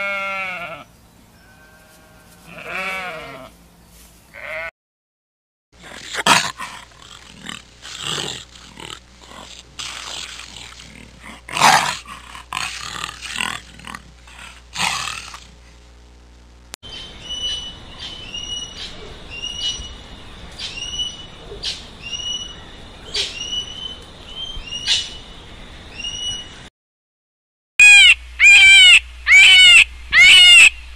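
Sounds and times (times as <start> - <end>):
lion growling: 5.8 - 15.6.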